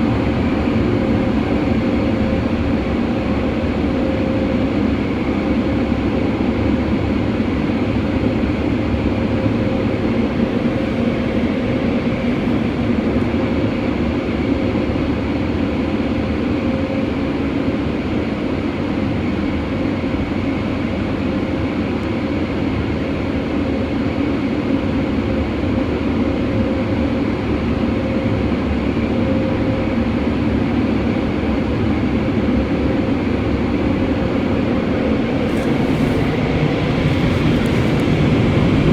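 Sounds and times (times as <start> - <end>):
dryer blowers rushing air: 0.0 - 14.1, 30.3 - 38.9.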